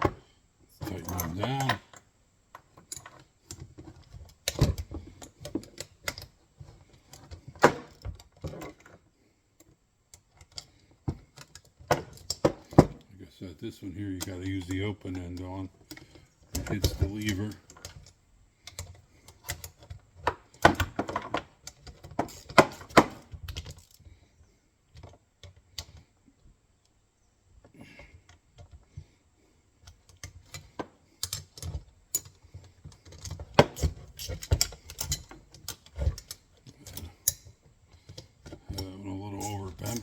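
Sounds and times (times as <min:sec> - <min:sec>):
wrench clicking on metal bolts: 0:20.6 - 0:23.0, 0:33.1 - 0:40.0.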